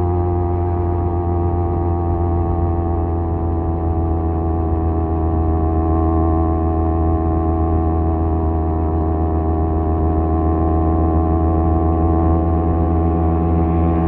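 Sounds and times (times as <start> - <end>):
motorcycle exhaust drone: 0.0 - 14.0.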